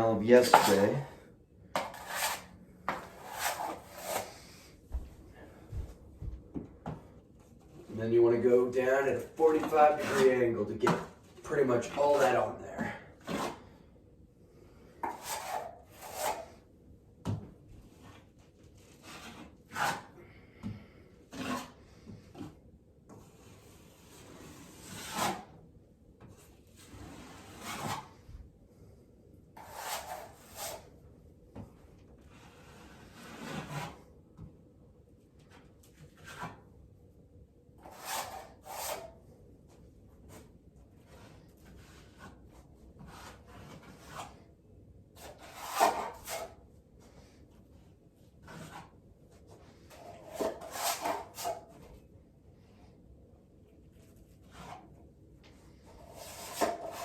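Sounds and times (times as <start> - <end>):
taping knife scraping drywall: 0.4 - 4.5, 9.2 - 13.9, 15.0 - 16.7, 17.9 - 20.4, 21.2 - 25.7, 26.3 - 28.3, 29.6 - 31.0, 32.2 - 34.2, 35.4 - 36.7, 37.8 - 39.3, 40.2 - 44.5, 45.2 - 52.0, 53.9 - 57.0.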